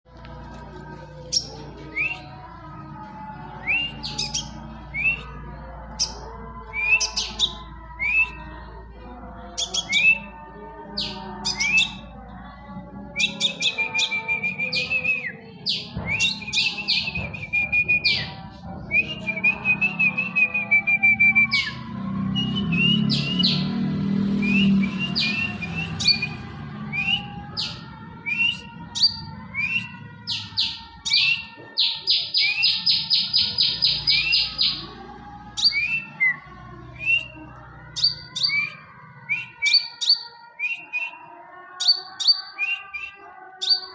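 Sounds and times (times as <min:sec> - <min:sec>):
bird chirping: 0:09.6 - 0:12.0, 0:27.0 - 0:34.8, 0:37.0 - 0:41.2, 0:41.8 - 0:43.9
bird trilling: 0:38.0 - 0:41.2.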